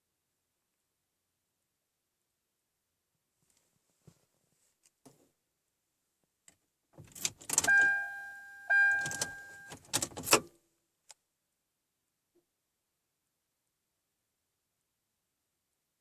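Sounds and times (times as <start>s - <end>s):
car keys jangling: 7.0s - 10.5s
electronic warning tone: 7.7s - 9.8s.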